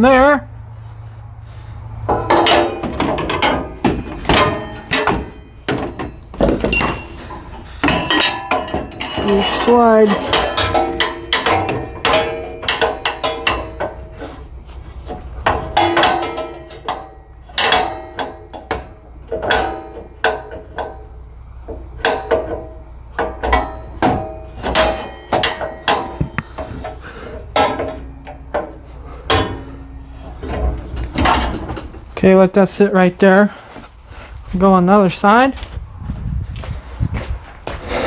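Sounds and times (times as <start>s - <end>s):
metal clanking and ringing: 2.1s - 32.0s.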